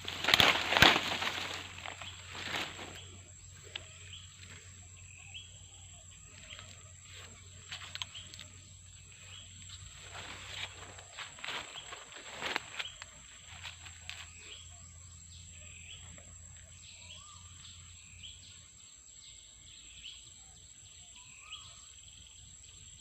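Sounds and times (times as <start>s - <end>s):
faint crackles: 0.0s - 4.7s, 6.3s - 14.4s
rustling in dry undergrowth: 0.0s - 14.8s.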